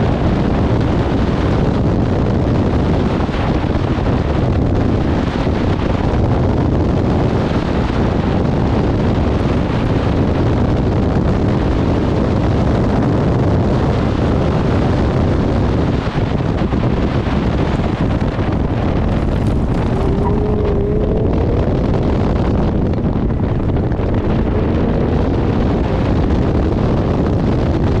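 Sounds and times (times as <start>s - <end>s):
car engine running hard: 0.0s - 28.0s
wind buffeting microphone: 0.0s - 28.0s
faint rising tone: 19.2s - 22.1s.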